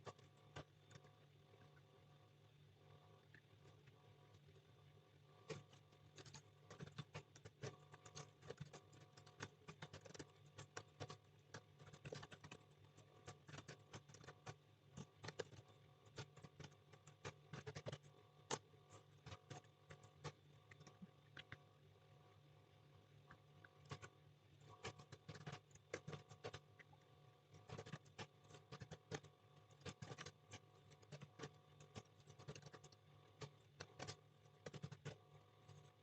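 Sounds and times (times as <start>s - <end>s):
low steady hum: 0.0s - 36.0s
typing on computer keyboard: 5.5s - 18.6s, 24.8s - 26.7s, 27.6s - 35.8s.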